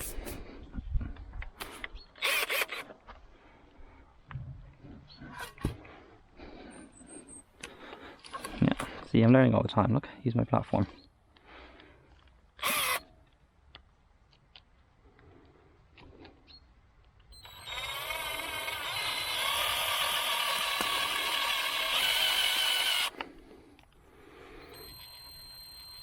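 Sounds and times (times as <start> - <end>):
cordless drill driving a screw: 2.2 - 2.9, 12.6 - 13.0, 17.4 - 23.3, 24.7 - 26.0.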